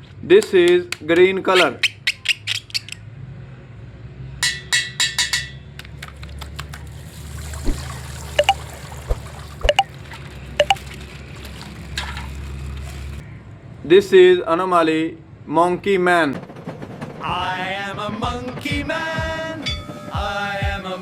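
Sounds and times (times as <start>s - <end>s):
water pouring and splashing: 6.1s - 13.2s.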